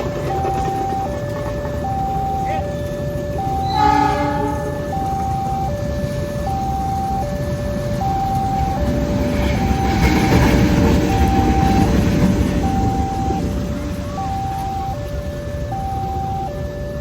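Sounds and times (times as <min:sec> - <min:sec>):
level crossing two-tone alarm: 0:00.0 - 0:17.0
train rumble: 0:00.0 - 0:17.0
train horn blast: 0:02.4 - 0:05.4.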